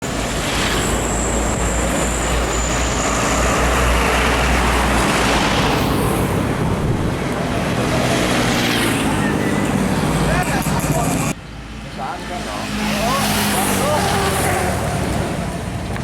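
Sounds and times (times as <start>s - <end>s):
road traffic engine and tyre noise: 0.0s - 16.0s.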